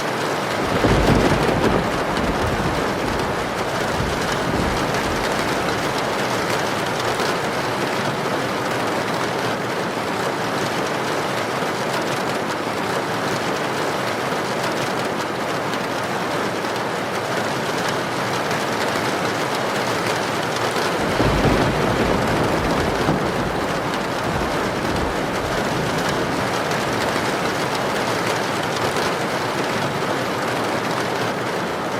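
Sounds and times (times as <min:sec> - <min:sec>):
heavy rain hissing: 0:20.4 - 0:30.7.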